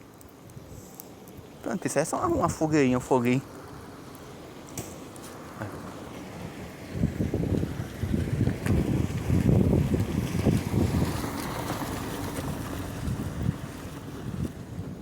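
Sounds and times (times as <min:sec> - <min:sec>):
wind buffeting microphone: 0:02.2 - 0:03.2, 0:05.4 - 0:15.0.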